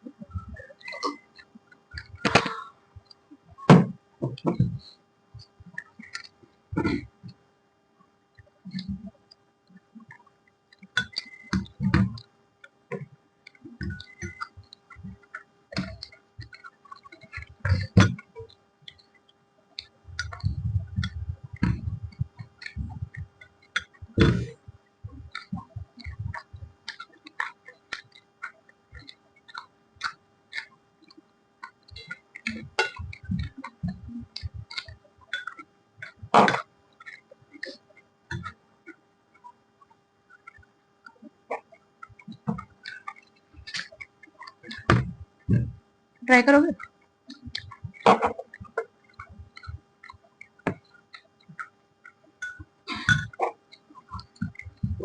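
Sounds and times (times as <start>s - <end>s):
faint steady hum: 0.0s - 55.0s
person chewing food: 25.2s - 38.6s.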